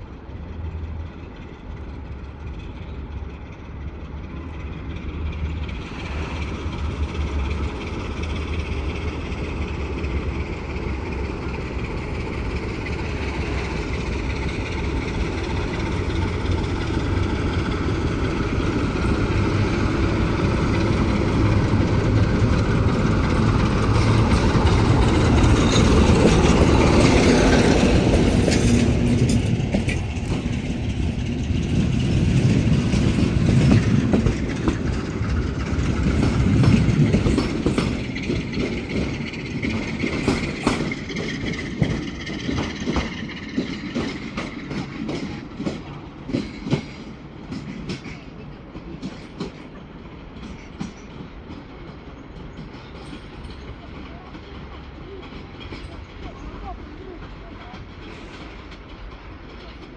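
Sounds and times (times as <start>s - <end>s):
locomotive engine running: 0.0s - 59.9s
wheels clicking over rail joints: 0.6s - 59.9s.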